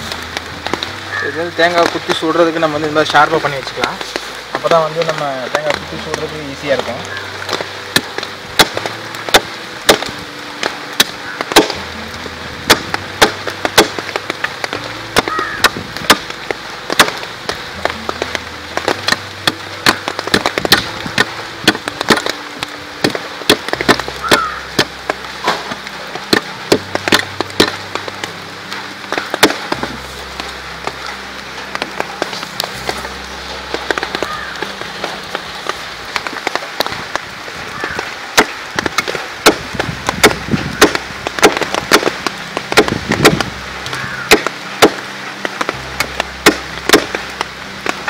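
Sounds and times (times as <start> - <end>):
background music: 0.0 - 48.0
blade chopping wood: 5.0 - 10.2, 11.0 - 11.8, 12.6 - 16.3, 16.9 - 17.2, 18.1 - 28.0, 29.2 - 30.0, 38.4 - 48.0.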